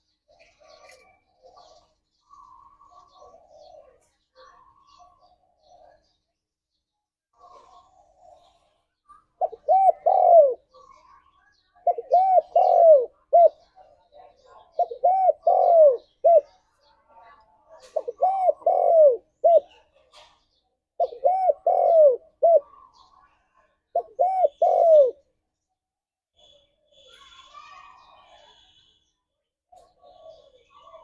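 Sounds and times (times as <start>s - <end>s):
dove cooing: 0.3s - 4.0s, 7.4s - 8.7s, 9.4s - 11.1s, 11.8s - 13.7s, 14.6s - 16.6s, 17.8s - 19.9s, 21.0s - 23.1s, 23.9s - 25.2s.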